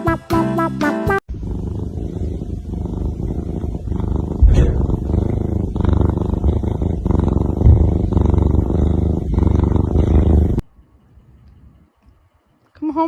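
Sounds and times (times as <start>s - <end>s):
cat purring loudly: 1.3s - 10.6s
short bump: 4.4s - 5.1s, 7.6s - 8.1s.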